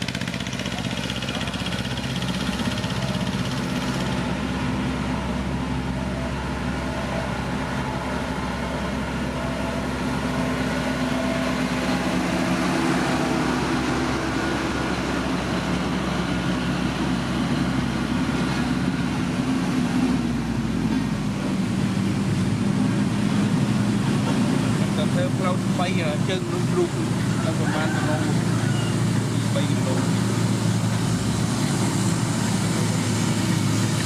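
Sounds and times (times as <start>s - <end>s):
heavy machinery engine running: 0.0s - 34.0s.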